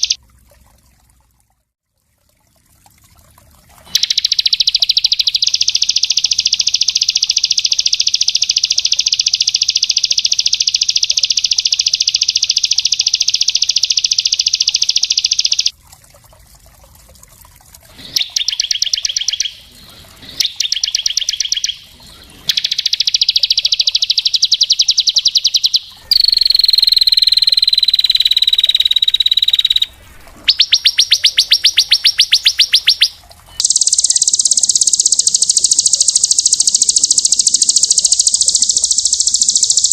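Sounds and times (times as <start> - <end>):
songbird singing rapid trills: 3.9 - 15.7, 18.0 - 29.9, 30.5 - 39.9.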